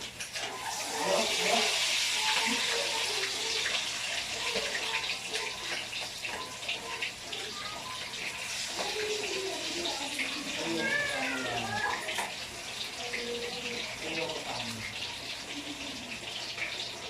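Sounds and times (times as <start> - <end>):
water running from tap: 0.0 - 17.0.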